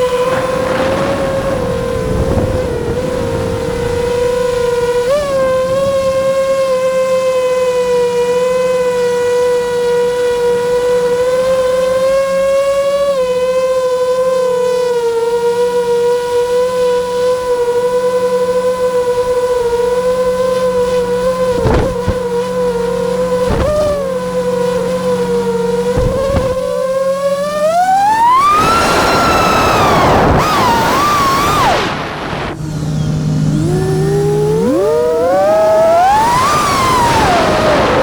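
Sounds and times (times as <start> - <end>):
drone propellers humming: 0.0 - 38.0
brief knocks: 21.5 - 22.3, 23.4 - 24.1, 25.9 - 26.8.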